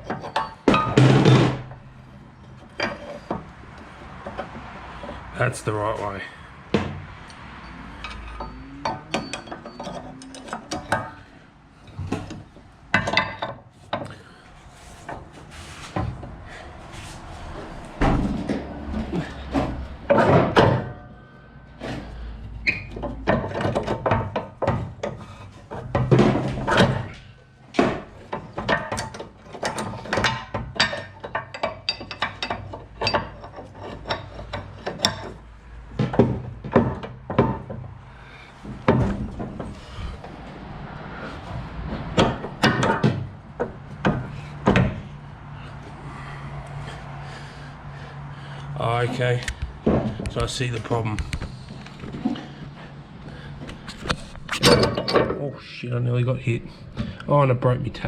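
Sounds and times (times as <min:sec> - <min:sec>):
metal parts clanking and scraping: 0:00.0 - 0:55.6.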